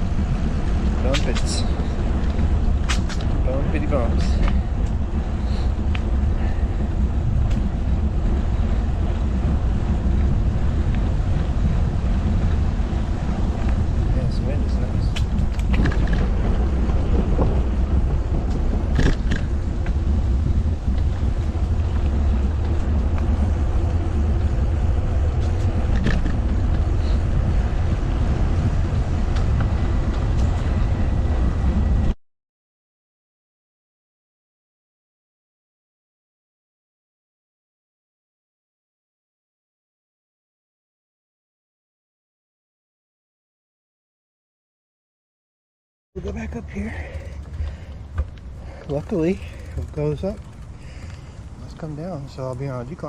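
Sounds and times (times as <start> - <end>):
bicycle riding noise: 0.0 - 32.2, 46.2 - 53.0
wind buffeting microphone: 0.0 - 32.2, 46.2 - 53.0.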